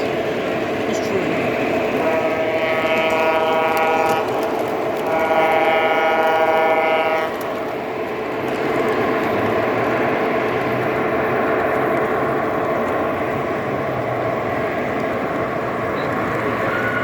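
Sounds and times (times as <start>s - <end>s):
model locomotive running noise: 0.0s - 17.0s
model locomotive horn blasts: 2.0s - 4.4s, 5.0s - 7.4s.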